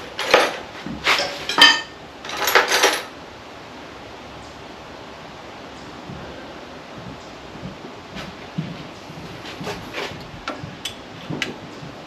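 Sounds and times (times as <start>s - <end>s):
spanners clinking against metal: 0.2s - 3.1s.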